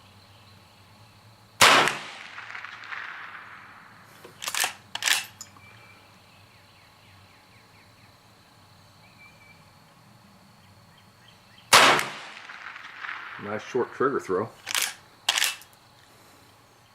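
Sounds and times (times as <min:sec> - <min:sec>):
gunshot echo: 0:01.6 - 0:04.0, 0:11.7 - 0:13.8
rifle lever metallic clacks: 0:04.3 - 0:05.5, 0:14.6 - 0:15.7.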